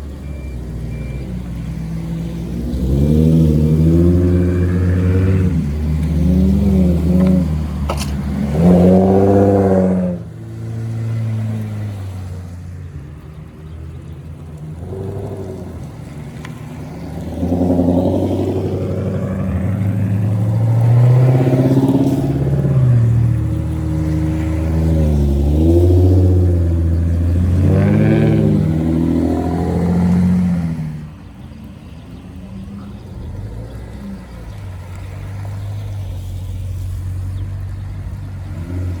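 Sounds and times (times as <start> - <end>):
cars driving past revving: 0.0 - 39.0.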